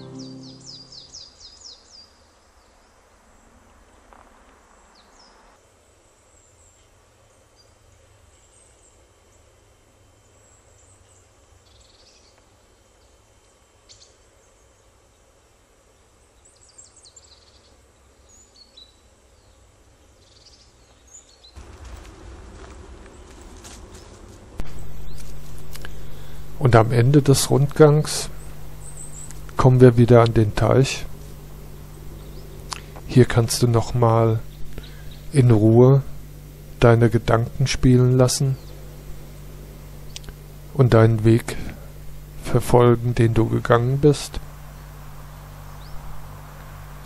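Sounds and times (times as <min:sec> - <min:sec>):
small birds chirping: 0:00.0 - 0:03.0, 0:10.3 - 0:15.2, 0:15.9 - 0:21.6, 0:23.1 - 0:42.3, 0:43.3 - 0:47.0
footsteps on leafy path: 0:21.6 - 0:29.6.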